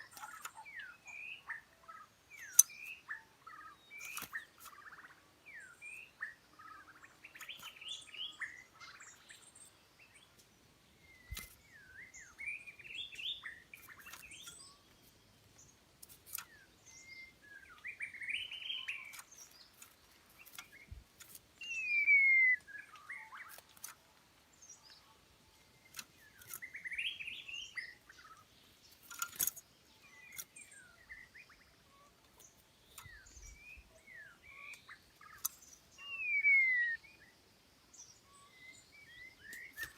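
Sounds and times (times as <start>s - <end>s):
songbird warbling: 0.0s - 10.2s, 10.9s - 15.0s, 15.6s - 24.0s, 25.8s - 37.3s, 38.0s - 39.9s.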